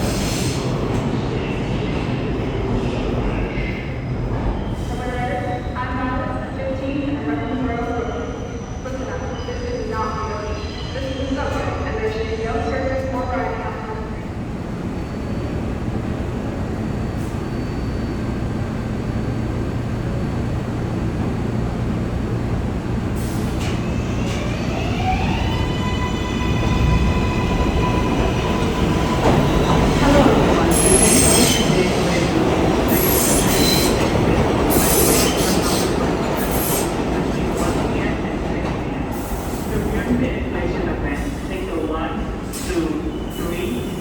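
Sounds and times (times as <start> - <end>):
train wheel squeal: 7.1 - 14.0, 14.8 - 20.2, 23.2 - 40.1.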